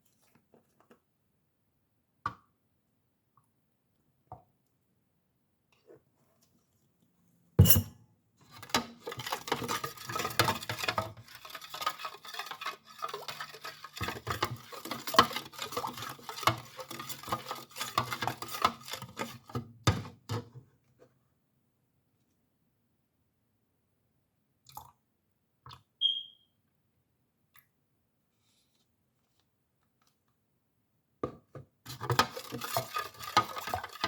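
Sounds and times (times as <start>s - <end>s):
utensil clinking against container: 31.9s - 34.0s.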